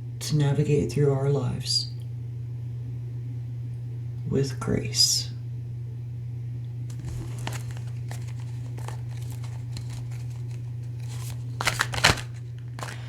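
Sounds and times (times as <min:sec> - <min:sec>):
steady low hum: 0:00.0 - 0:13.0
cards flicking and rustling: 0:06.9 - 0:13.0.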